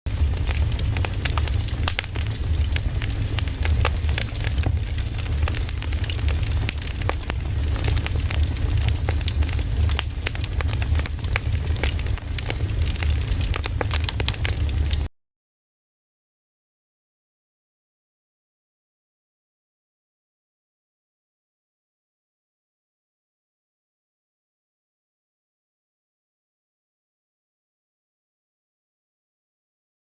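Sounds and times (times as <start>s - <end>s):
campfire crackling and popping: 0.1s - 15.1s
low rumble: 0.1s - 15.1s.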